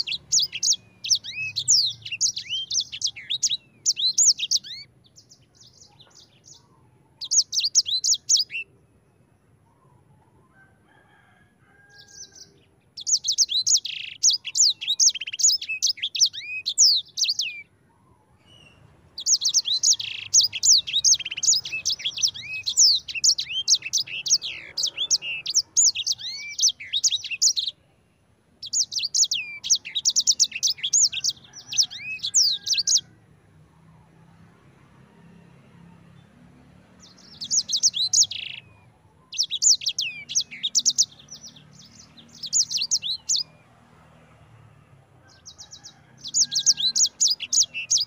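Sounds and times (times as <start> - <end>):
songbird trilling: 0.0 - 8.7, 12.0 - 17.6, 18.4 - 27.8, 28.6 - 33.0, 37.0 - 43.6, 45.5 - 48.0.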